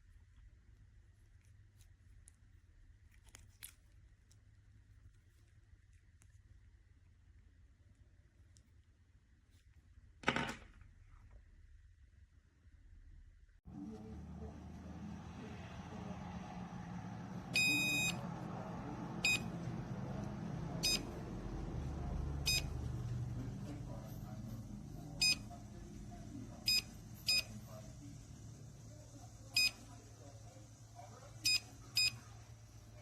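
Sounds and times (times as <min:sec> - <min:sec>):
low steady rumble: 0:12.0 - 0:33.0
high electronic beeps: 0:17.6 - 0:18.2.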